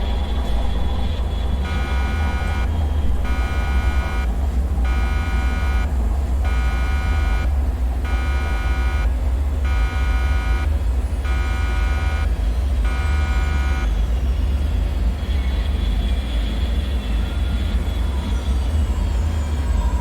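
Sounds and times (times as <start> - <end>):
falling high whine: 0.0 - 14.0
deep rumbling drone: 0.0 - 20.0
faint high tones: 1.6 - 13.9
electronic alarm buzzer: 1.6 - 14.0.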